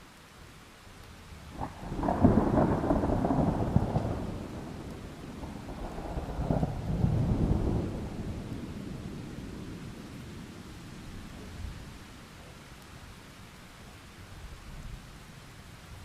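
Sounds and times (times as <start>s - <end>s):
rain: 0.0s - 16.0s
thunder rolling: 1.5s - 9.8s.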